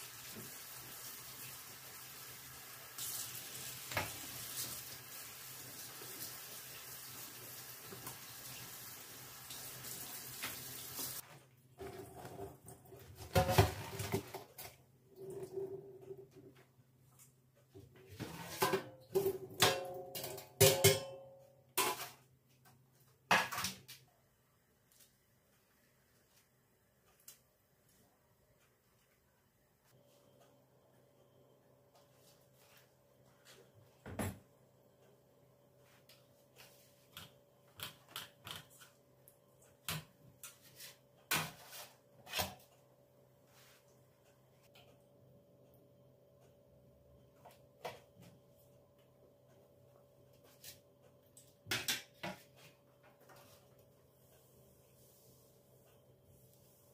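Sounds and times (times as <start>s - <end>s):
dishes clinking and clattering: 18.4s - 21.2s.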